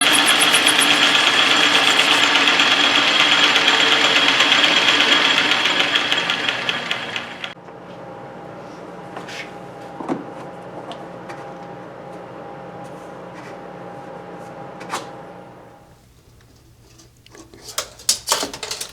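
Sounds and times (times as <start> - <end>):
electric motor whining: 0.0 - 7.4.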